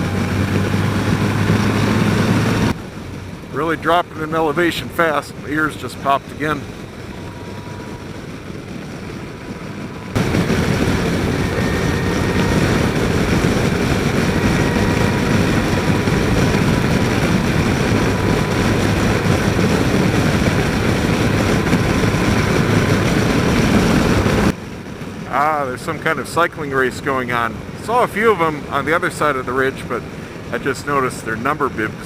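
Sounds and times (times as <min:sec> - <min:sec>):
motorcycle engine rumble: 0:00.0 - 0:32.0
wind noise on helmet microphone: 0:04.6 - 0:25.3.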